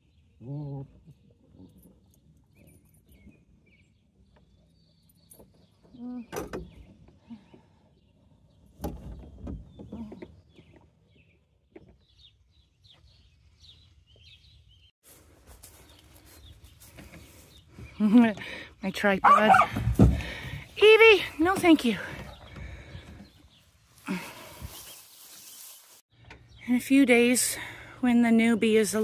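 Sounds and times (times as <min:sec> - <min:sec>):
birds chirping faintly: 0:00.0 - 0:29.0.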